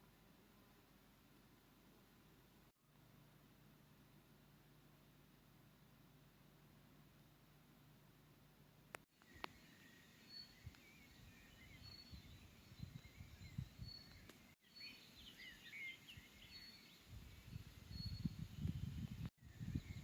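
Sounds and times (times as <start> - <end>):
small birds twittering: 9.1 - 20.0.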